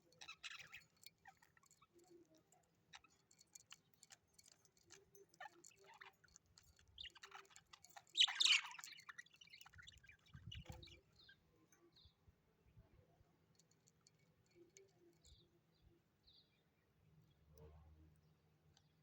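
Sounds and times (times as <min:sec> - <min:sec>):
birds chirping: 0:00.0 - 0:02.3, 0:02.9 - 0:12.2.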